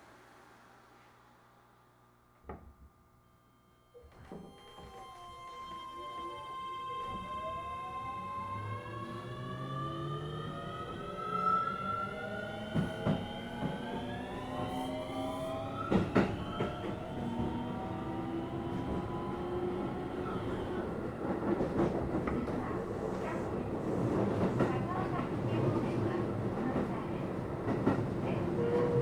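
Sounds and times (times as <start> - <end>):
train rolling noise: 12.7 - 29.0.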